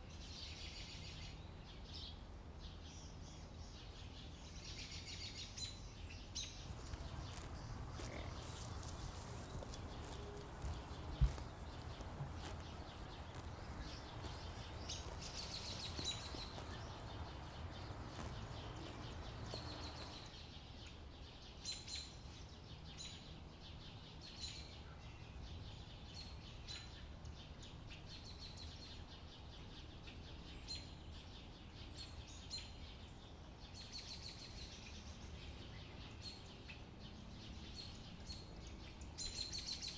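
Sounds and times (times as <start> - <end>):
small birds chirping: 6.4 - 20.3
low wind rumble: 6.7 - 20.3.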